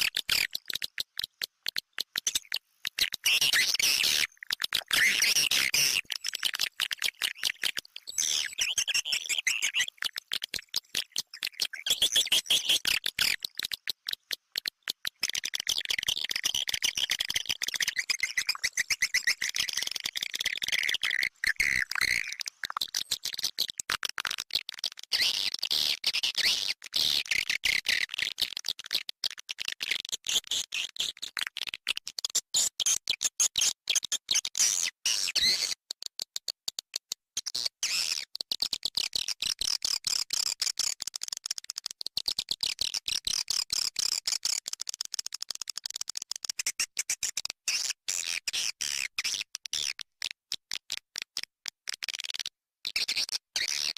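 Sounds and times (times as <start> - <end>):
swiftlets chirping and twittering: 2.3 - 13.6, 17.5 - 23.3.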